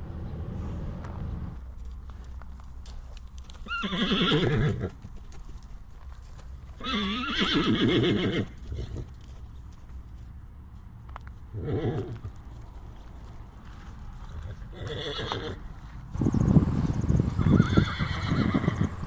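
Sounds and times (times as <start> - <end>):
hooves clopping: 1.5 - 19.0
horse whinnying: 3.6 - 4.9, 6.8 - 8.6, 11.6 - 12.2, 14.7 - 15.6, 16.2 - 19.0.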